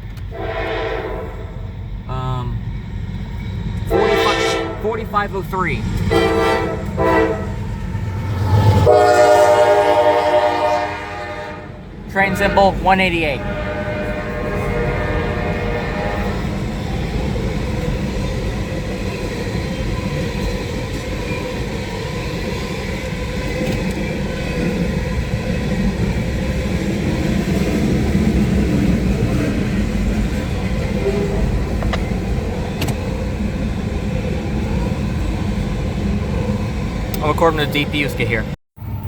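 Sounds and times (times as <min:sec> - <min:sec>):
train wheels clattering on rails: 0:16.3 - 0:35.6.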